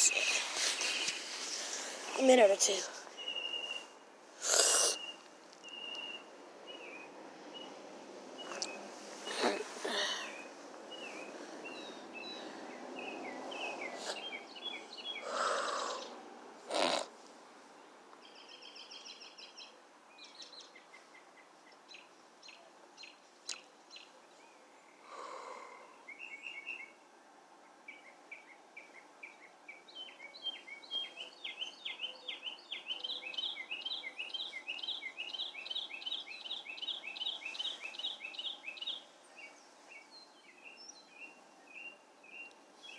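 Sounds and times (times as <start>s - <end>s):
birds chirping: 0.0s - 17.1s, 27.9s - 42.9s.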